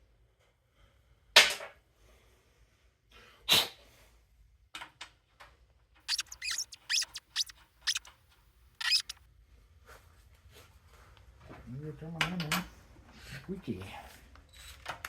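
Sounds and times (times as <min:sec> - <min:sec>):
sharp loud noises: 0:06.1 - 0:08.0
high-pitched squeaks: 0:06.1 - 0:08.1, 0:08.8 - 0:09.2.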